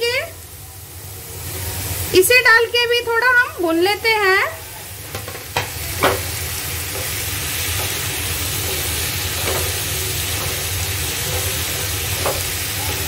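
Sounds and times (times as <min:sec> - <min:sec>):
vegetables sizzling in hot oil: 0:00.0 - 0:13.0
spatula knocking on pan: 0:05.1 - 0:06.3, 0:06.9 - 0:13.0.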